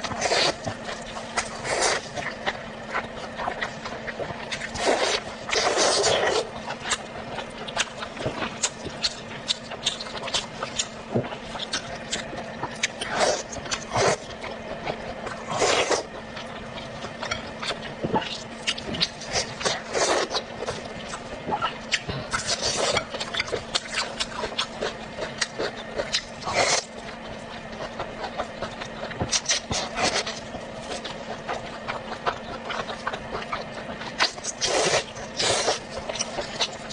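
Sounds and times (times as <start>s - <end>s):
slurping or crunching: 0.0s - 2.4s, 4.5s - 7.0s, 11.5s - 14.3s, 15.3s - 16.2s, 17.2s - 24.8s, 25.4s - 27.0s, 28.2s - 36.9s
person chewing with mouth smacks: 0.0s - 36.9s.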